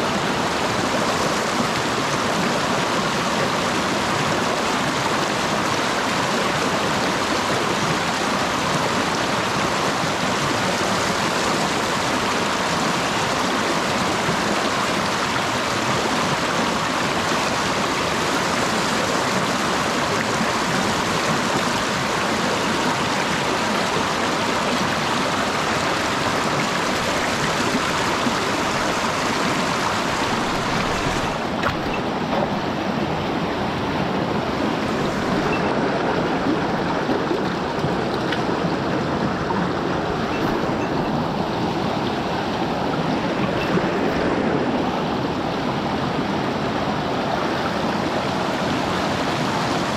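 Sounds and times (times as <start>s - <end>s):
stream rushing over rocks: 0.0s - 49.9s.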